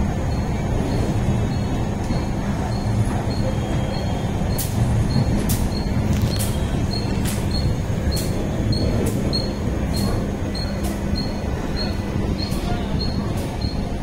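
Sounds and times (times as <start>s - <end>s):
low train rumble: 0.0s - 14.0s.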